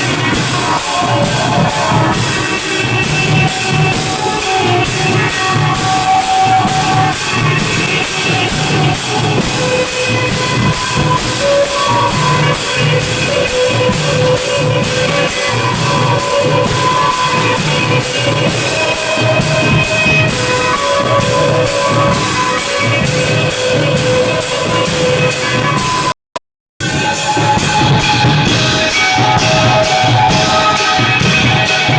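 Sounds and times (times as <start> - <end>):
cymbal strikes: 26.8 - 31.9.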